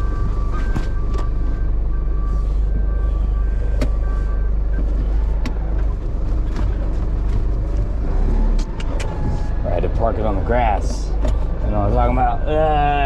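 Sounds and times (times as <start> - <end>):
reversing alarm beeping: 0.0 - 5.9
truck engine rumbling: 0.0 - 13.0.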